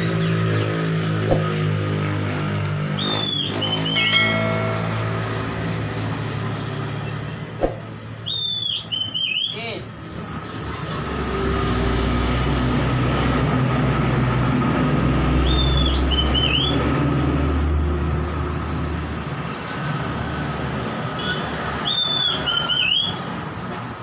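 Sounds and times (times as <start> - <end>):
songbird whistling: 2.9 - 4.1, 7.0 - 9.6, 15.4 - 16.8, 21.8 - 23.3.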